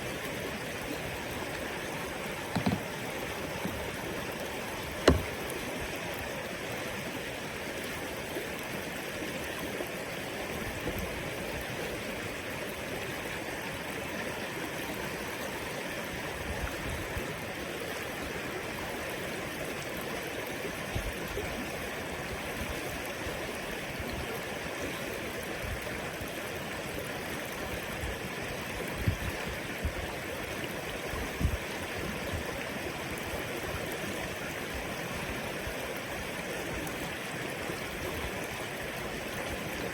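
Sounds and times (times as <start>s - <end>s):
river water rushing over rocks: 0.0s - 16.1s
low knocks: 2.5s - 3.0s, 5.0s - 5.4s.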